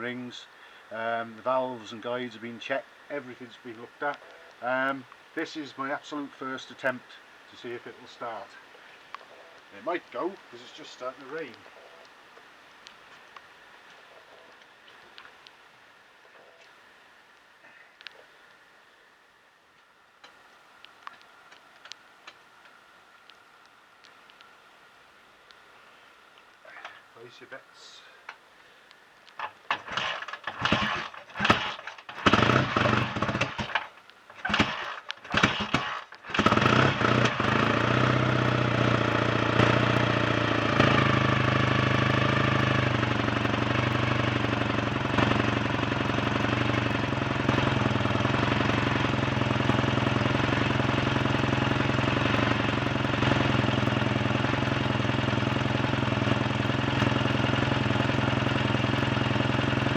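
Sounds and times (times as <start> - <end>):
motorcycle engine starting and running: 29.4 - 59.9.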